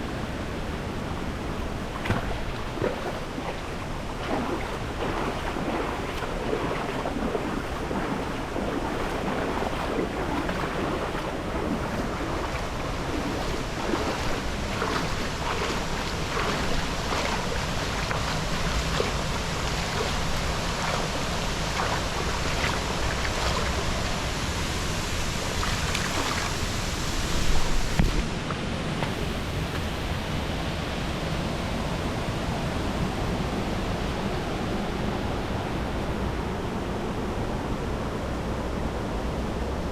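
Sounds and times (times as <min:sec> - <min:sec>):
rushing falling water: 0:00.0 - 0:30.7.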